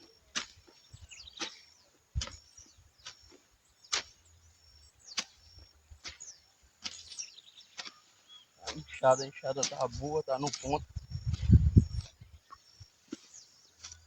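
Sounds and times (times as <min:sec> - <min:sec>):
hoe chopping into soil: 0:00.3 - 0:04.4, 0:05.1 - 0:08.9.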